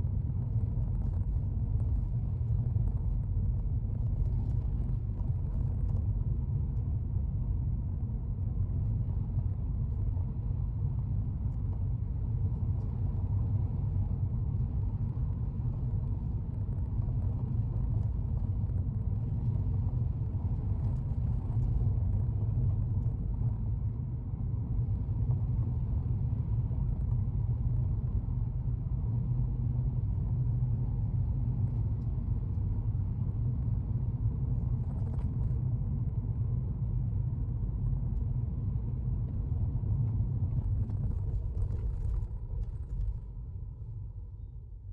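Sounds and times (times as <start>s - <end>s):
car engine and road noise: 13.1s - 44.8s.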